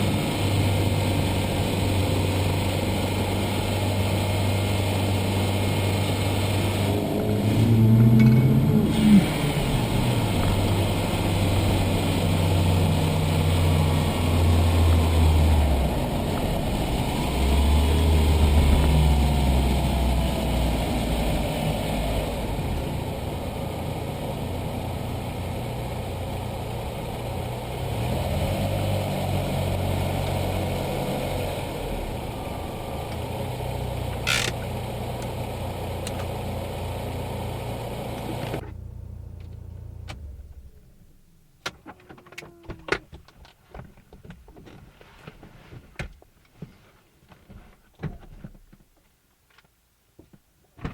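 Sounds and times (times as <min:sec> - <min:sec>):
car engine idling and revving: 0:00.0 - 0:41.1
sharp engine click: 0:34.3 - 0:34.7.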